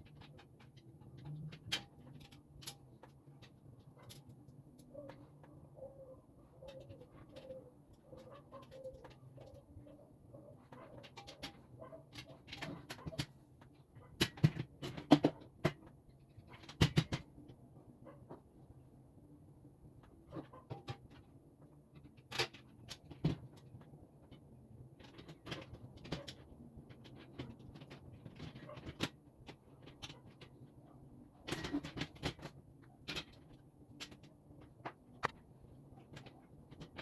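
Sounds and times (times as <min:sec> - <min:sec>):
knocks and clicks of parts handled: 0:10.7 - 0:17.6.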